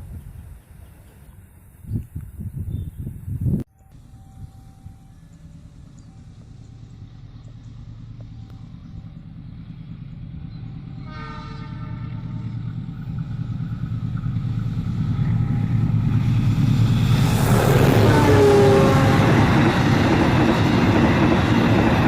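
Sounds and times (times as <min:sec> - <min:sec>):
diesel locomotive engine rumble: 0:00.0 - 0:22.0
train horn: 0:10.9 - 0:12.6, 0:17.6 - 0:19.6.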